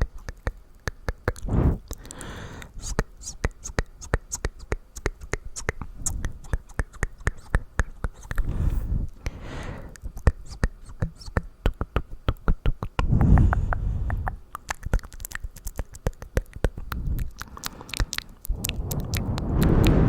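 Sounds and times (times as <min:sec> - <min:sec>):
wet tongue and lip clicks: 0:00.0 - 0:20.0
low rushing sound: 0:18.5 - 0:20.0.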